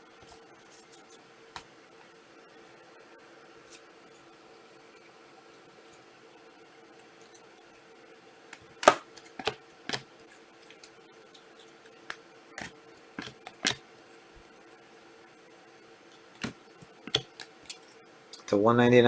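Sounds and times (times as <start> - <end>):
faint steady hum: 0.0 - 19.0
trading cards clicking and rustling: 8.6 - 13.8, 16.2 - 18.5.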